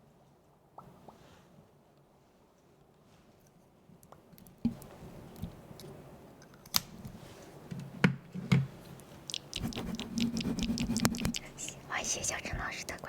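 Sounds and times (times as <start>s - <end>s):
faint low hum: 3.4s - 13.0s
sharp clicks and taps: 9.2s - 11.8s.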